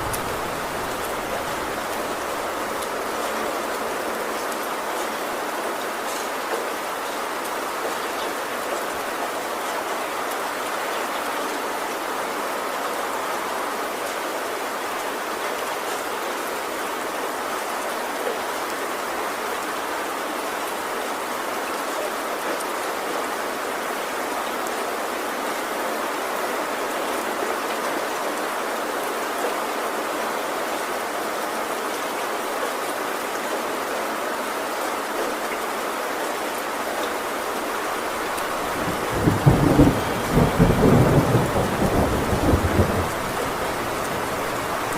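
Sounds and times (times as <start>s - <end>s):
heavy rain on a tin roof: 0.0s - 44.9s.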